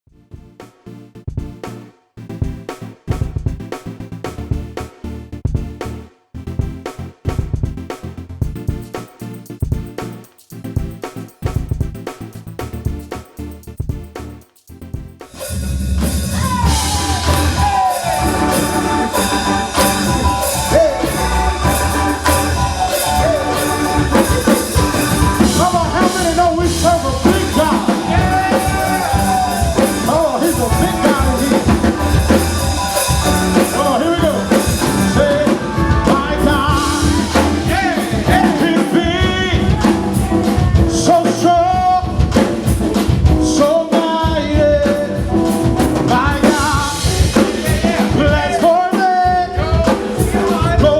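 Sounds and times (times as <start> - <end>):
band with drums and bass: 2.4 - 6.0, 6.6 - 50.9
person singing: 16.3 - 42.3, 46.0 - 50.9.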